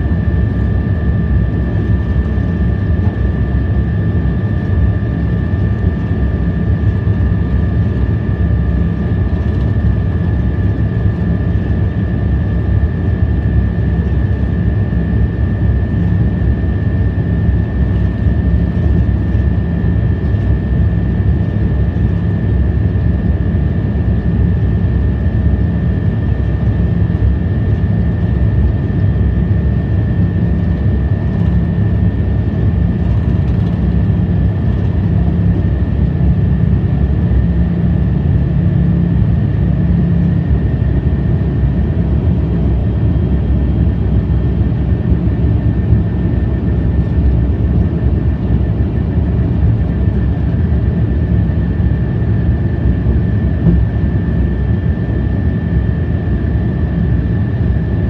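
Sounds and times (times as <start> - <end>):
low hum: 52.3 - 58.0.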